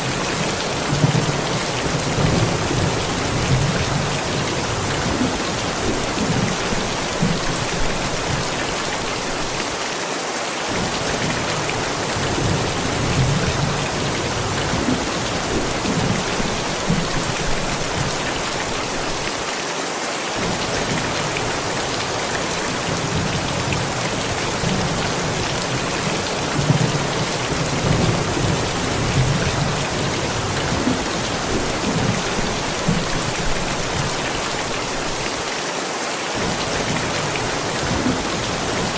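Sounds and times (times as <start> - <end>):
steady rain falling: 0.0 - 38.9
thunder rumbling: 22.5 - 35.0.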